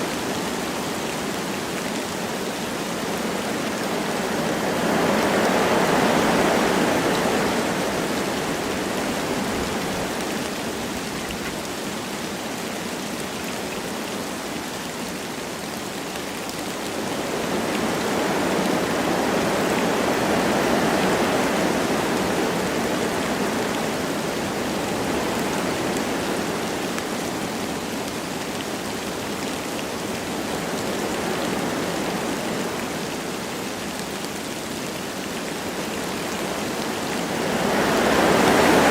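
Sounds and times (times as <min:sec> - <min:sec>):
light rain falling: 0:00.0 - 0:38.9
wind blowing through trees: 0:00.0 - 0:38.9.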